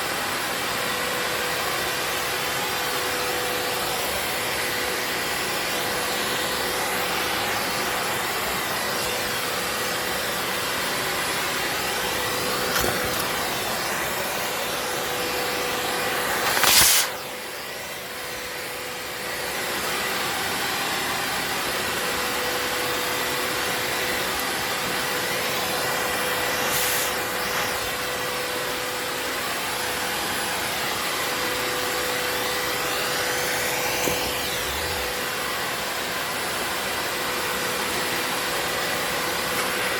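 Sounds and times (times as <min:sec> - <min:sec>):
vacuum cleaner whine: 0:00.0 - 0:39.9
brief loud swish: 0:16.3 - 0:17.2.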